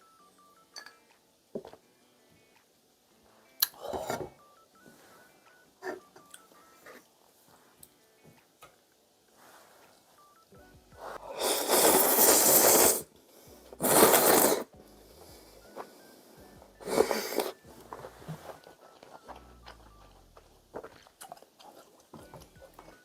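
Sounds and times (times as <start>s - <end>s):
person slurping noodles: 11.0s - 13.1s, 13.8s - 14.7s, 16.8s - 17.6s.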